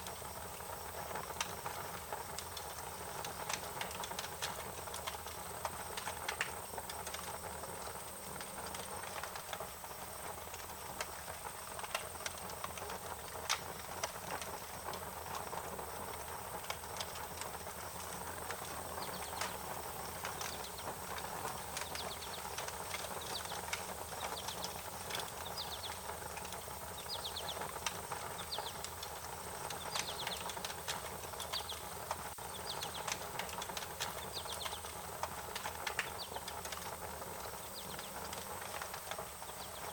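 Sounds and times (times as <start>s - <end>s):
wood fire crackling: 0.0s - 39.9s
small bird chirping: 18.8s - 29.0s, 29.6s - 30.6s, 31.3s - 35.0s, 35.9s - 36.5s, 37.4s - 38.3s, 39.4s - 39.9s.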